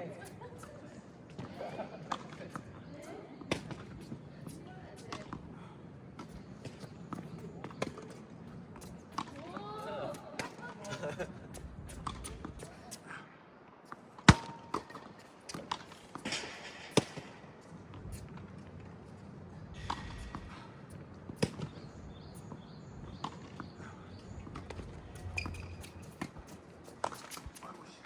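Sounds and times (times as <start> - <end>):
tennis ball bouncing on court: 0.2 - 5.5, 6.2 - 12.8, 13.9 - 18.6, 19.7 - 27.6
tennis ball struck by rackets: 3.4 - 5.4, 8.8 - 12.7, 14.2 - 17.5, 19.8 - 20.6, 21.3 - 27.6.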